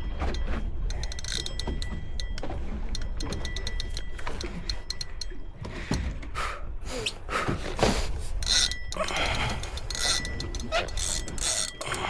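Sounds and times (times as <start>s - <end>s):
fishing reel clicking: 0.0s - 5.4s, 8.2s - 12.0s.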